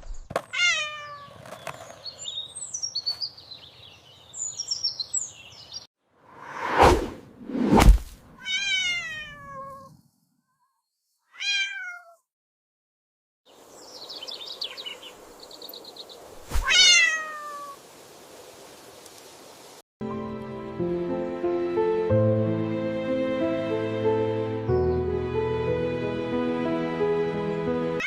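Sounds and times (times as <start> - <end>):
cat meowing: 0.5 - 1.3, 8.4 - 9.9, 11.3 - 12.2, 16.6 - 17.8.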